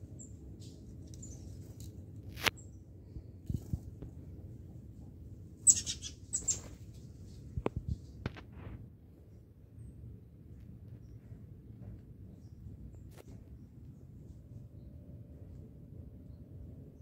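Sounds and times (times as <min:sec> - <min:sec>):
small birds chirping: 0:00.0 - 0:01.8, 0:02.5 - 0:02.9, 0:05.6 - 0:07.0
low steady hum: 0:00.0 - 0:17.0.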